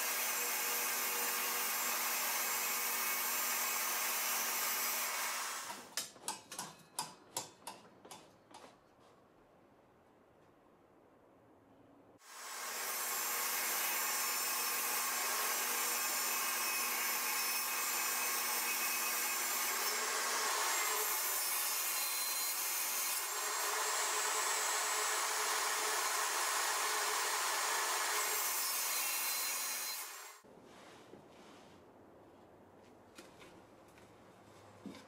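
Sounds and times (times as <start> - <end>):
table saw cutting wood: 0.0 - 5.8, 12.2 - 30.4.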